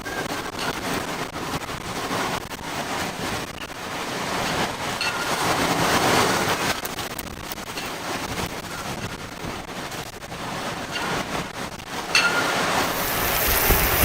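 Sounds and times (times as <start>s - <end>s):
driving rain on vehicle: 0.0s - 14.0s
wind rushing: 9.9s - 14.0s.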